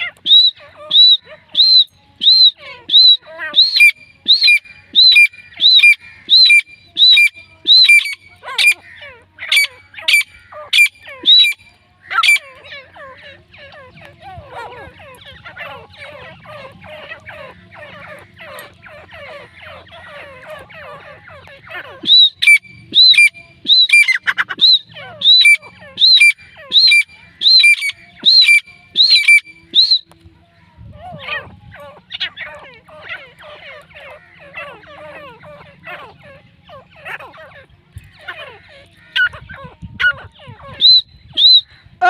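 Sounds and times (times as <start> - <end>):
bird ringing call notes: 0.0 - 13.0, 15.1 - 30.2
bird rapid chattering calls: 0.0 - 30.0.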